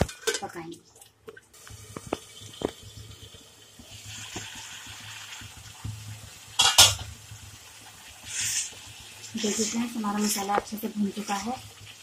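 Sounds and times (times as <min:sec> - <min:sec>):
masala sizzling and bubbling: 0:00.0 - 0:12.0.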